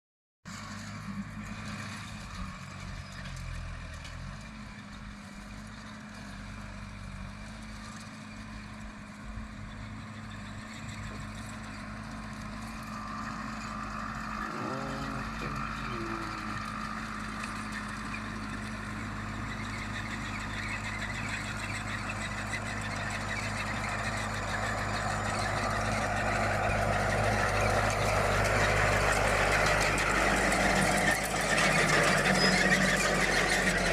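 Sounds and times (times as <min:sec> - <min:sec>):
tractor engine running: 0:00.5 - 0:33.9
rattling machinery: 0:09.6 - 0:33.9.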